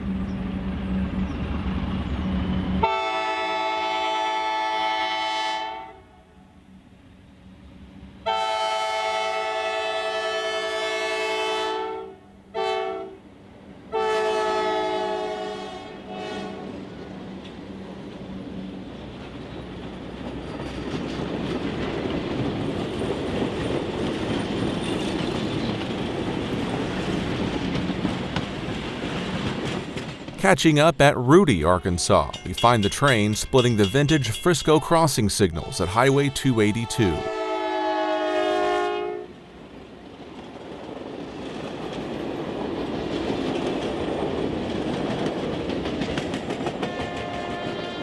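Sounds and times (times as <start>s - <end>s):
locomotive air horn blasts: 2.8s - 6.0s, 8.3s - 13.1s, 13.9s - 16.6s, 37.2s - 39.3s
train rumbling past: 16.2s - 30.4s.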